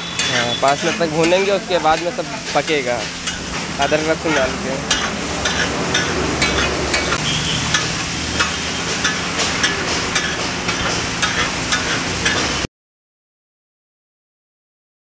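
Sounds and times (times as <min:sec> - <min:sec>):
chicken sizzling on griddle: 0:00.0 - 0:12.7
metal spatula scraping griddle: 0:00.0 - 0:12.7.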